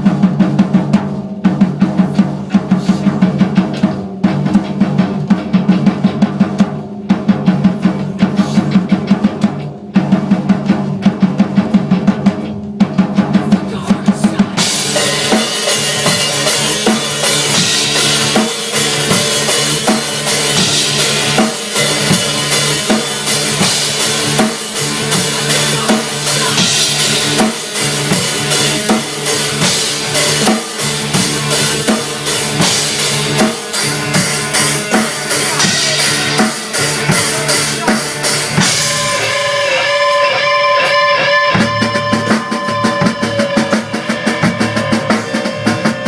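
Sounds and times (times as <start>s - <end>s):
drum kit played fast: 0.0s - 46.0s
cymbals crashing: 14.6s - 46.0s.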